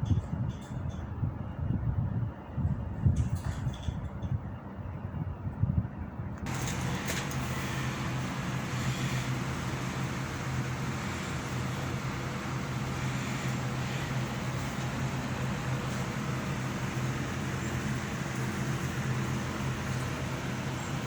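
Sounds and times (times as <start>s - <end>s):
air conditioner fan rush: 0.0s - 21.0s
compressor hum: 6.4s - 21.0s.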